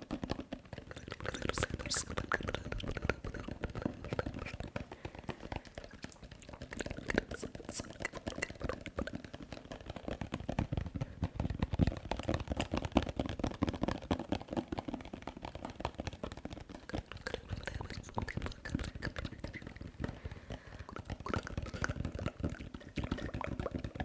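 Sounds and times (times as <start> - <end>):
mouth sounds: 0.9 - 4.7, 5.8 - 8.9, 16.8 - 23.8.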